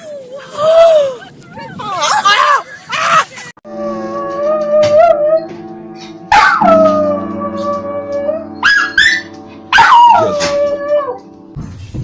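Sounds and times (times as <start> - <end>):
dog howling: 9.8 - 11.2.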